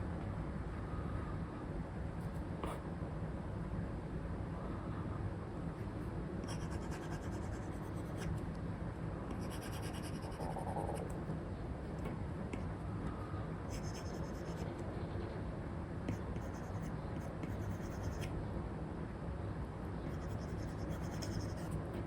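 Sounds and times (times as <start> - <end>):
stylus scratching on screen: 5.8 - 8.4, 9.3 - 11.2, 13.7 - 14.7, 16.1 - 18.3, 20.1 - 22.0.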